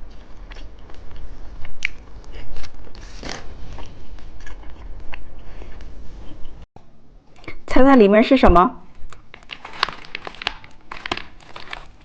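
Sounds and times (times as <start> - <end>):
person chewing crunchy snack: 0.0 - 6.6, 9.1 - 12.0.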